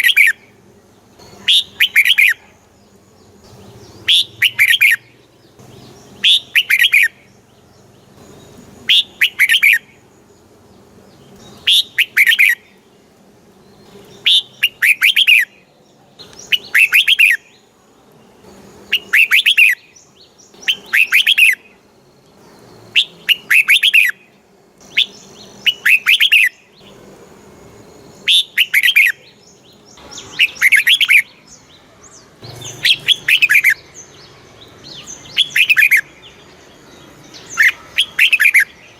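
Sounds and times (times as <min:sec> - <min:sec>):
bird singing whistled phrases: 0:01.3 - 0:02.4, 0:04.0 - 0:05.1, 0:06.2 - 0:07.3, 0:08.9 - 0:09.9, 0:11.6 - 0:12.7, 0:14.2 - 0:15.6, 0:16.3 - 0:17.6, 0:18.9 - 0:21.7, 0:22.9 - 0:24.2, 0:24.9 - 0:26.6, 0:28.2 - 0:29.4, 0:30.0 - 0:31.5, 0:32.1 - 0:34.0, 0:34.8 - 0:36.3, 0:37.4 - 0:38.8.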